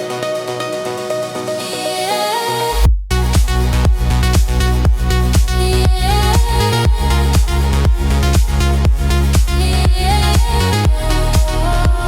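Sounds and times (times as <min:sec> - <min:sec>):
synth chords stepping upward: 0:00.0 - 0:12.0
deep bass: 0:02.8 - 0:12.0.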